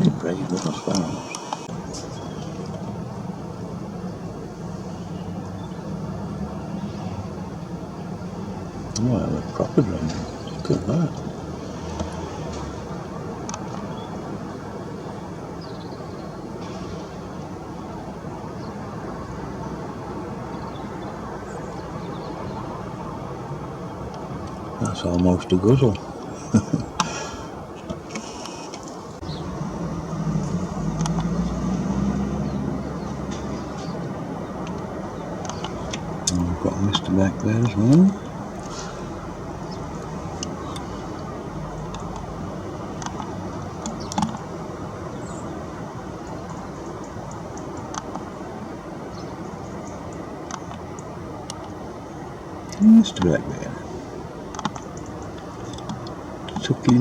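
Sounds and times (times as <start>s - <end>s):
faint bird chirps: 0.0s - 2.7s
low background rumble: 0.0s - 57.0s.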